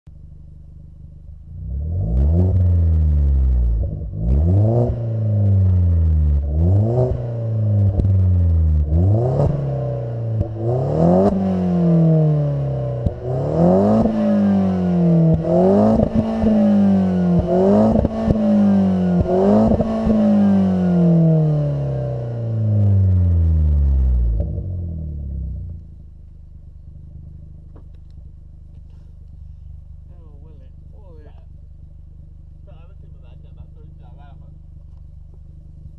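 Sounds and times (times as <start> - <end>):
car engine idling: 0.1 - 35.9
car engine revving: 1.0 - 35.9
exhaust pops and crackles: 25.7 - 31.6.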